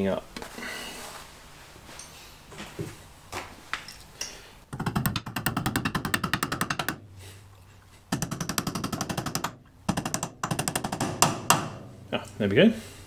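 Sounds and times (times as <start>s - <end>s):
rapid metal-on-metal hammer blows: 8.1s - 12.1s.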